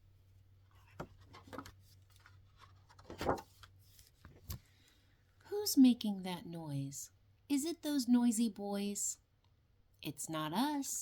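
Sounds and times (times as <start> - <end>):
low steady hum: 0.0 - 11.0
book pages turning: 0.7 - 4.7.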